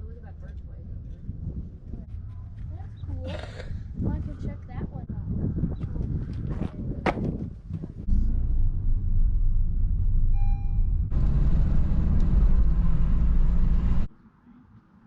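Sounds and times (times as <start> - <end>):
low rumble: 0.0 - 14.1
short beep: 10.3 - 11.0.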